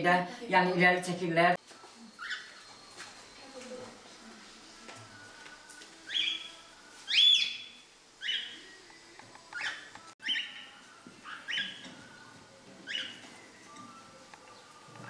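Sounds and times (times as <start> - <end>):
pet bird chirping: 2.1 - 2.7, 6.1 - 8.6, 9.6 - 11.9, 12.8 - 13.3.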